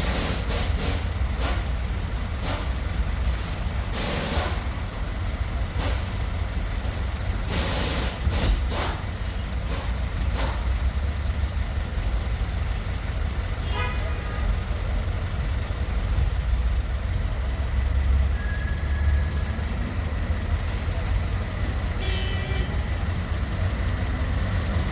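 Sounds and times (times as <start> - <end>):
engine rumbling: 0.0 - 24.9
short bursts of hiss: 3.3 - 4.6, 7.5 - 9.0.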